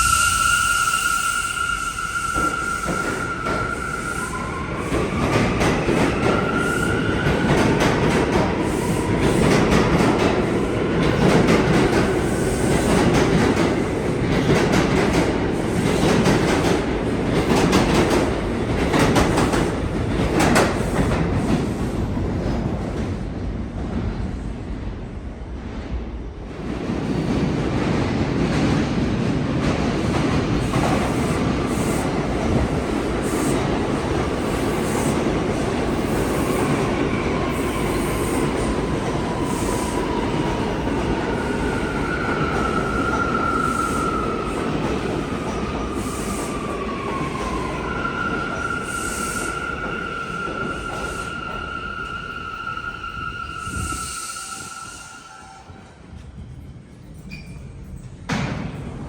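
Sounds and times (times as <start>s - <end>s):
subway train rumbling on rails: 0.0s - 59.0s
high wheel squeal: 48.1s - 55.8s.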